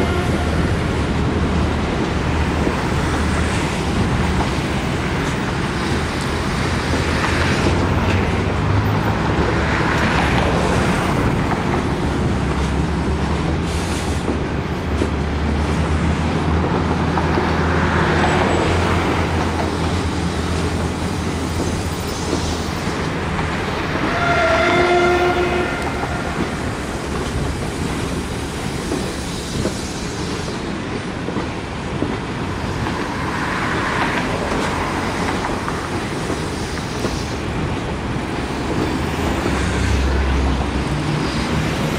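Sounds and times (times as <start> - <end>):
train horn blast: 0.0 - 1.0, 23.9 - 26.8
diesel locomotive running: 0.0 - 41.9.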